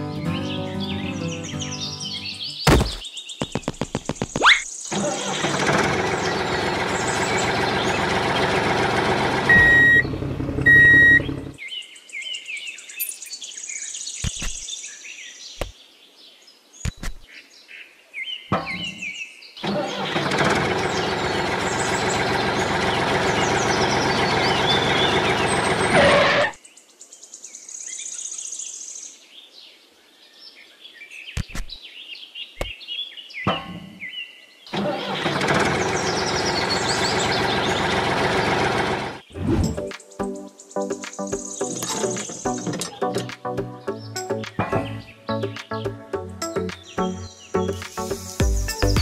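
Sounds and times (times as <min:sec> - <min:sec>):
birds chirping: 0:00.0 - 0:05.0, 0:05.8 - 0:08.8, 0:09.5 - 0:20.0, 0:20.7 - 0:49.0
tractor engine running: 0:02.7 - 0:11.6, 0:19.6 - 0:26.4, 0:34.7 - 0:39.3.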